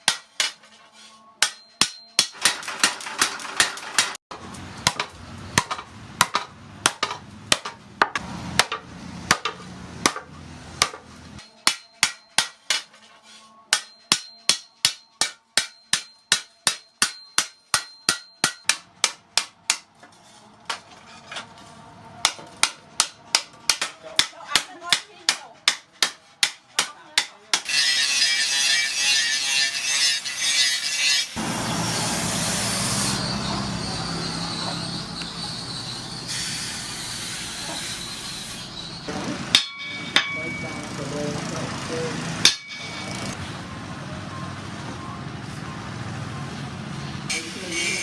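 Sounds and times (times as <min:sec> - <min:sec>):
hammers ringing on steel: 0:01.4 - 0:04.1, 0:10.8 - 0:12.9, 0:13.7 - 0:19.9, 0:39.5 - 0:43.4.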